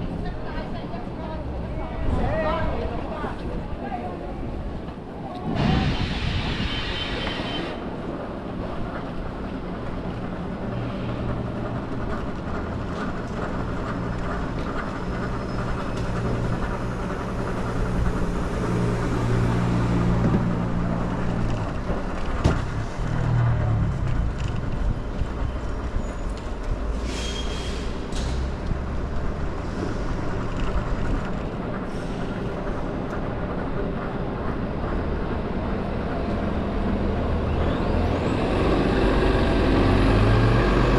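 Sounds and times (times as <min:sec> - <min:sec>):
vehicle engine humming: 0:10.0 - 0:27.0.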